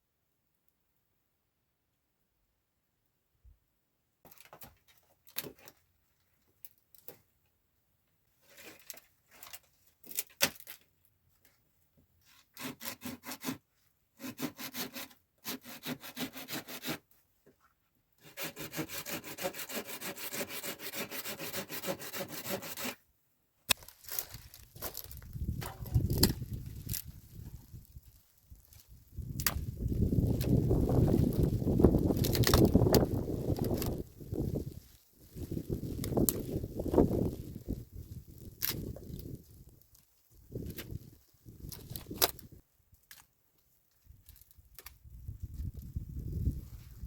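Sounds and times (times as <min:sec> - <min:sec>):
wood being sawn: 0:12.3 - 0:13.6, 0:14.2 - 0:17.1, 0:18.2 - 0:23.0.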